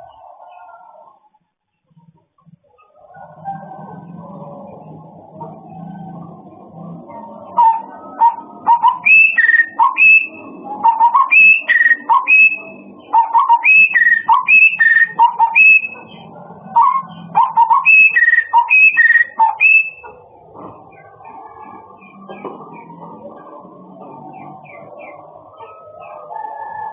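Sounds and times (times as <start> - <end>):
songbird whistling: 7.6 - 16.1, 16.8 - 20.2.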